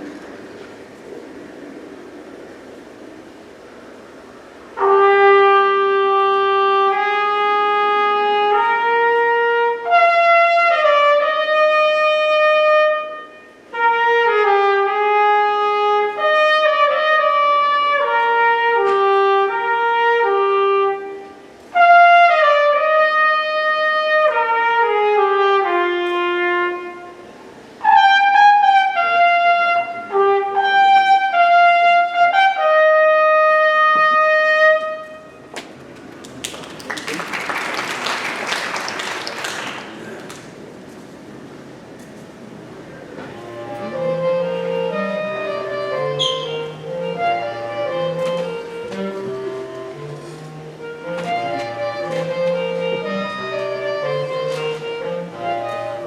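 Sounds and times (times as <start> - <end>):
trumpet melody: 4.7 - 35.5, 43.4 - 56.0.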